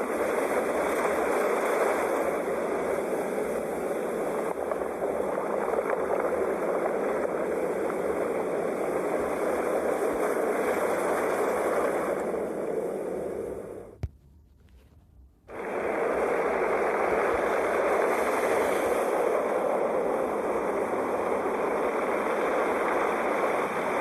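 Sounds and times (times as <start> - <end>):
sea waves breaking on shore: 0.0 - 13.9, 15.5 - 24.0.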